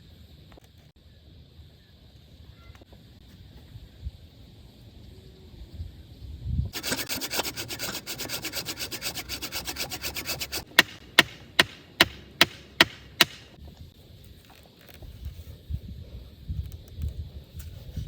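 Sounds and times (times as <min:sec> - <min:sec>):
hand tool rasping wood: 0:06.8 - 0:13.5
sharp knocks: 0:10.5 - 0:13.6.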